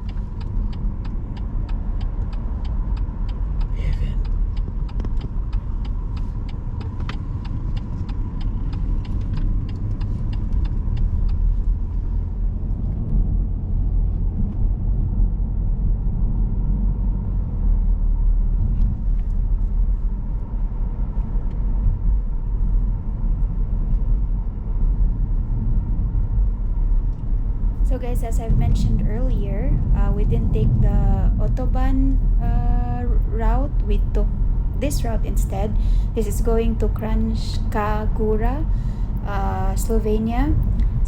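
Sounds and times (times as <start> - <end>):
turn signal ticking: 0.0 - 13.1, 27.8 - 41.0
car road and engine rumble: 0.0 - 41.0.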